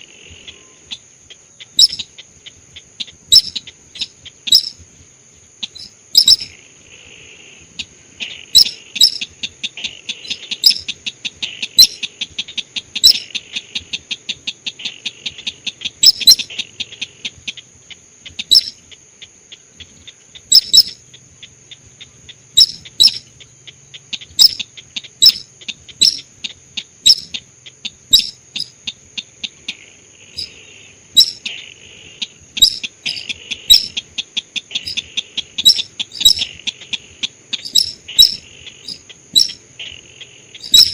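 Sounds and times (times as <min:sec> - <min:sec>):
sharp high bird calls: 0:00.0 - 0:04.8, 0:05.6 - 0:06.6, 0:07.6 - 0:14.0, 0:14.8 - 0:17.7, 0:18.3 - 0:19.0, 0:19.6 - 0:40.9
fast ticking trills: 0:01.4 - 0:04.8, 0:05.6 - 0:06.6, 0:08.5 - 0:09.3, 0:10.1 - 0:12.1, 0:18.4 - 0:18.8, 0:20.3 - 0:29.0, 0:31.2 - 0:31.6, 0:32.2 - 0:40.9.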